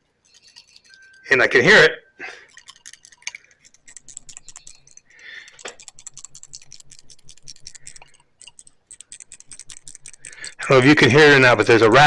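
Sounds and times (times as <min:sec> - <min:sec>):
valve rattling in light clicks: 0:02.4 - 0:11.4.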